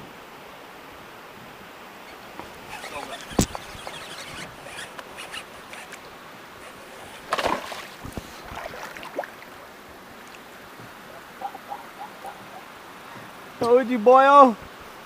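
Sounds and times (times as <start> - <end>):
kayak knocks and rustles: 2.3 - 6.0, 6.6 - 9.5.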